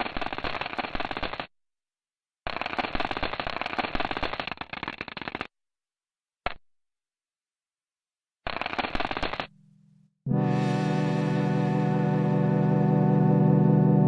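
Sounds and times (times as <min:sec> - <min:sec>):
crackling popping static: 0:02.5 - 0:05.5, 0:08.5 - 0:09.5.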